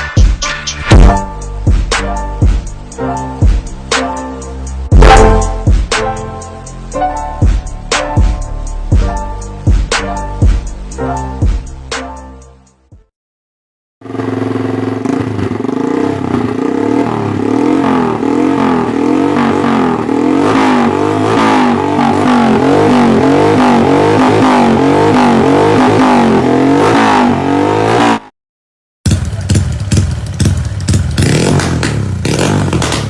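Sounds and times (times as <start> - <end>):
motorcycle engine revving: 14.0 - 28.3, 29.1 - 33.0.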